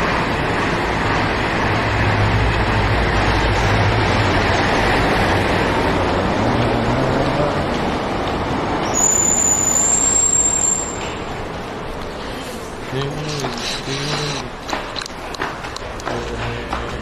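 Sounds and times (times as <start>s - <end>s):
vehicle engine rumble: 0.0s - 8.9s
traffic hiss: 1.8s - 14.6s.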